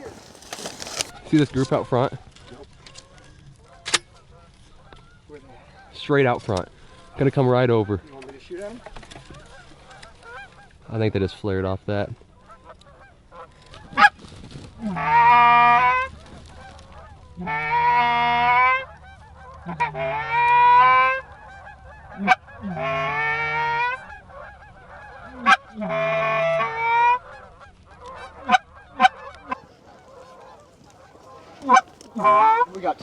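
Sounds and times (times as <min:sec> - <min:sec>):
goose clucks: 0:00.0 - 0:10.8, 0:12.2 - 0:14.2, 0:14.8 - 0:33.0
goose honking: 0:06.8 - 0:10.9, 0:12.3 - 0:14.2, 0:14.8 - 0:33.0.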